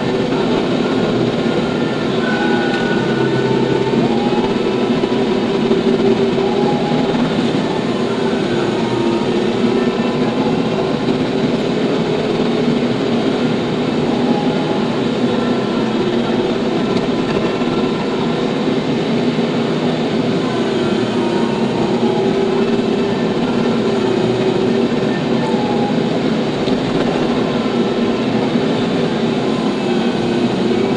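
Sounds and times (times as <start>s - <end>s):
tractor diesel engine running: 0.0s - 30.9s.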